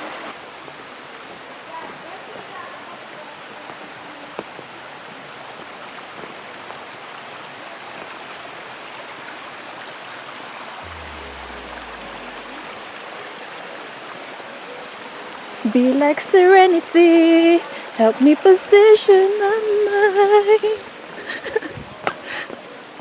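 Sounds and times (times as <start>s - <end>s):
stream flowing over rocks: 0.0s - 23.0s
brief low rumble: 10.8s - 13.1s.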